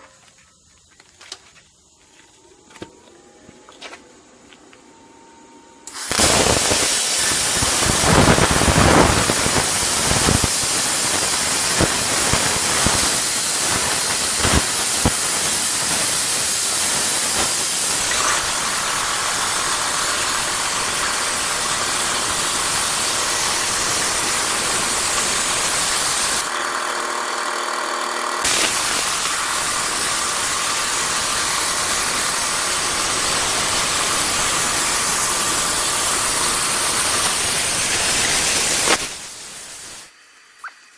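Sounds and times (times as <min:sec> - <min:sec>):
plasma cutter hissing: 0:05.9 - 0:26.5, 0:28.4 - 0:40.2.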